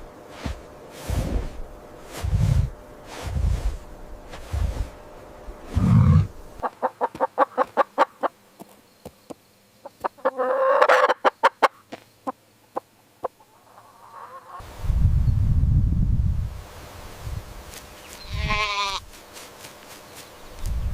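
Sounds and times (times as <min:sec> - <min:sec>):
low rumble: 0:01.1 - 0:06.6
chickens clucking: 0:05.7 - 0:08.8, 0:09.8 - 0:14.6
harsh chicken call: 0:10.2 - 0:11.8, 0:13.4 - 0:14.6.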